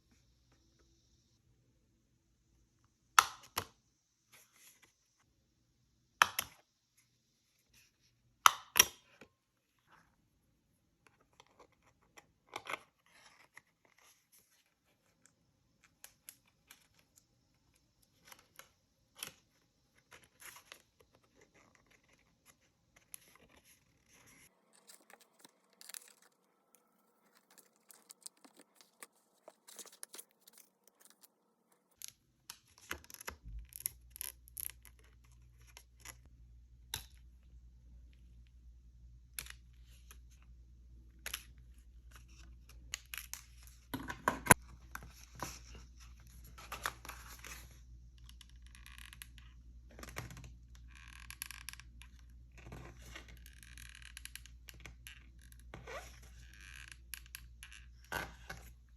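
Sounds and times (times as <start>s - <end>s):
paper rustling and tearing: 24.1s - 31.3s.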